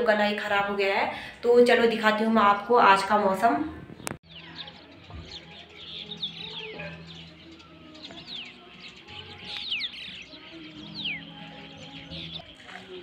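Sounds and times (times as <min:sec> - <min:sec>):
birds whistling: 0:04.0 - 0:13.0.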